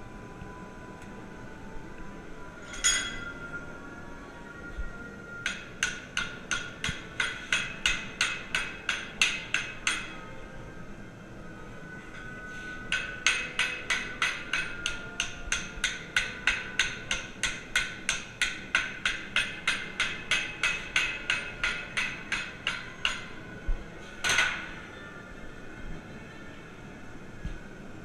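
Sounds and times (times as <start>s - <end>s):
hammer striking steel: 2.7s - 3.3s, 5.4s - 10.2s, 12.9s - 23.4s, 24.2s - 24.8s.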